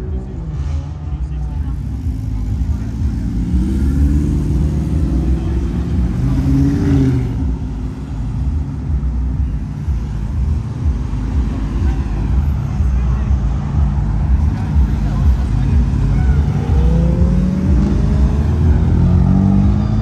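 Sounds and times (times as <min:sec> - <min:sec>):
cars driving past: 0:00.0 - 0:20.0
engine revving: 0:00.0 - 0:20.0.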